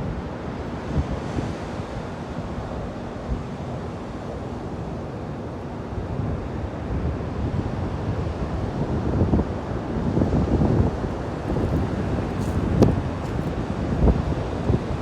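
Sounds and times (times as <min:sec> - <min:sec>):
ocean surf on beach: 0:00.0 - 0:15.0
wind buffeting microphone: 0:06.0 - 0:15.0.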